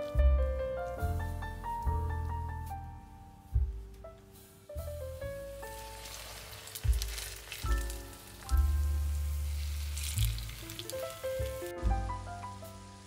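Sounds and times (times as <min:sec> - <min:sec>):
background music with piano: 0:00.0 - 0:13.0
food sizzling in oil: 0:05.2 - 0:11.9.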